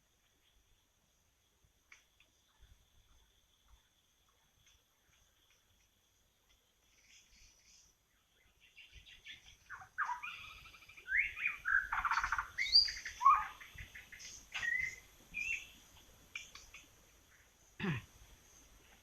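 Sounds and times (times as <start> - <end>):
bird singing whistled phrases: 9.7 - 13.7, 14.5 - 15.8.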